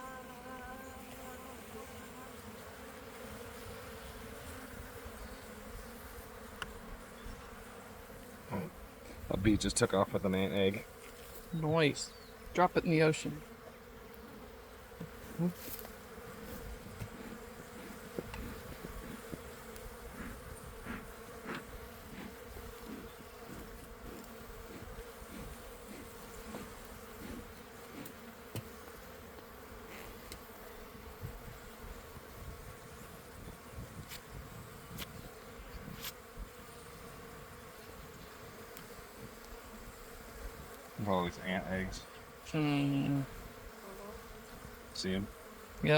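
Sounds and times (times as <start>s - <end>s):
honeybees buzzing: 0.0s - 45.9s.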